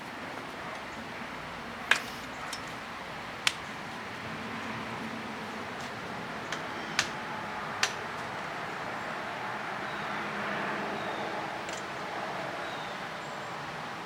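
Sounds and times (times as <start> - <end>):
steady hiss: 0.0 - 8.6
sharp clicks: 7.8 - 8.3.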